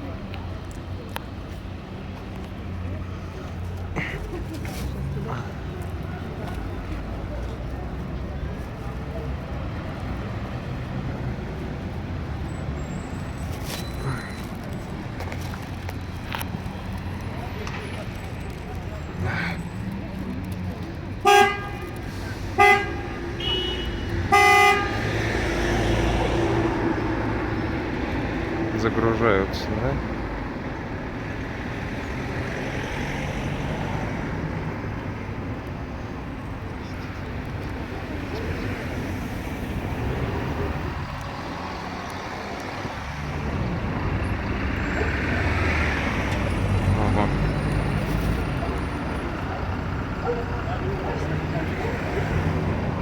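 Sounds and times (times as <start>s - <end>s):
traffic rumble: 0.0s - 53.0s
vehicle horn honking: 21.2s - 25.1s.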